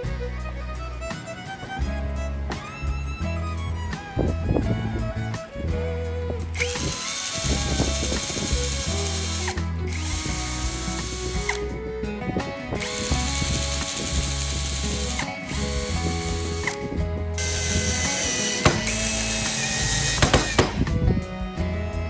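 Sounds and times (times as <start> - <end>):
background music: 0.0 - 22.0
electric power tool running: 6.5 - 11.7, 12.8 - 21.0.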